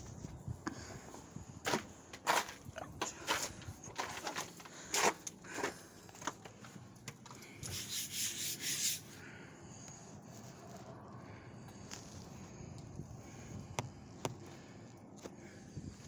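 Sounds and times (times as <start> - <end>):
crunching footsteps: 1.6 - 7.8
rustling rub: 7.6 - 9.2.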